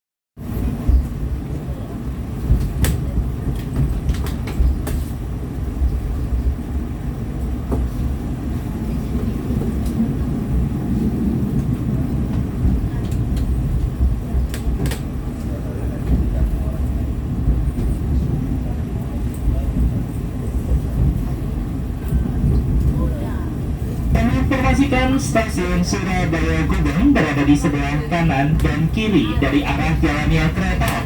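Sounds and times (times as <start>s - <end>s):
train rumbling on rails: 0.4s - 31.0s.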